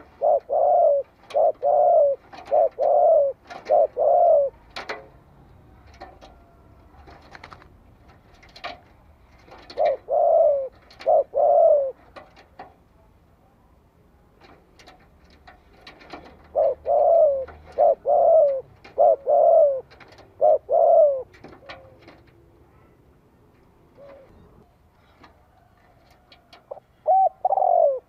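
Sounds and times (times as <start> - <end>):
dove cooing: 0.0 - 7.7, 9.4 - 12.6, 15.8 - 23.0, 23.8 - 28.0.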